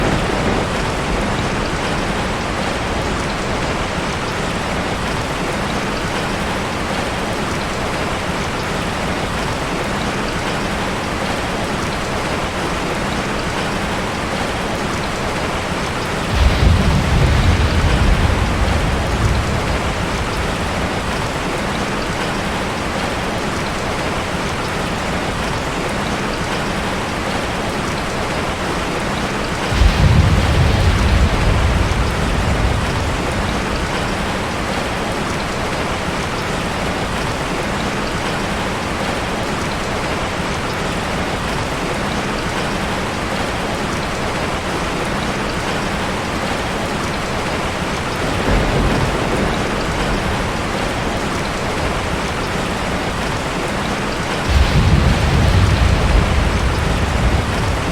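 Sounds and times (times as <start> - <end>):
thunder clap: 0.0 - 4.0, 16.0 - 22.3, 29.6 - 35.1, 48.2 - 53.5, 54.2 - 57.9
heavy rain: 0.0 - 57.9.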